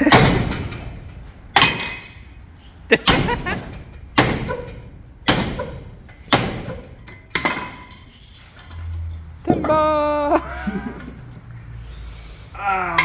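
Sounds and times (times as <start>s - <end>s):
hammer striking metal: 1.5s - 2.2s, 3.0s - 7.9s.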